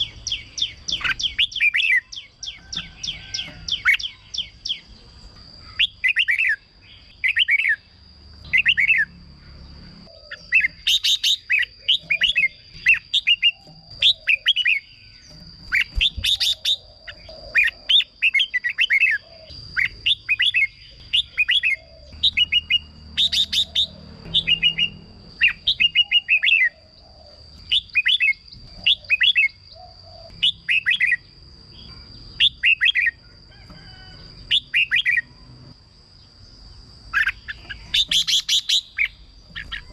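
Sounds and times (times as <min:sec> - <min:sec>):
bird singing whistled phrases: 0:19.8 - 0:26.8.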